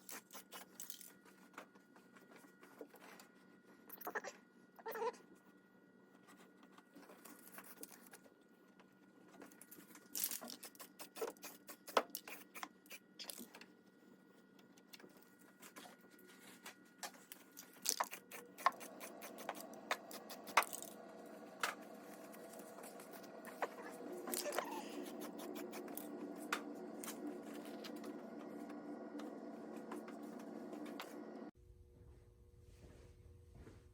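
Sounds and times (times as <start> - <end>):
small objects clicking and scraping: 0.0 - 1.2, 9.5 - 13.6, 17.3 - 21.0
faint steady hum: 0.0 - 33.9.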